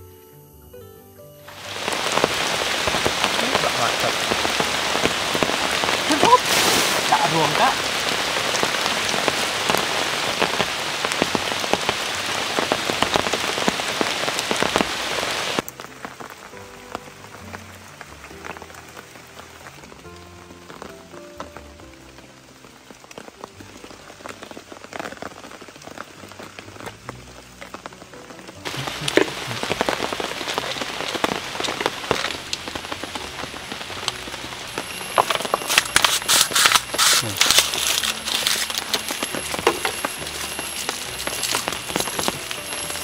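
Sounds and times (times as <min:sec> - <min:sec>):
soft background music: 0:00.0 - 0:06.4, 0:15.6 - 0:43.0
heavy rain drops: 0:01.5 - 0:43.0.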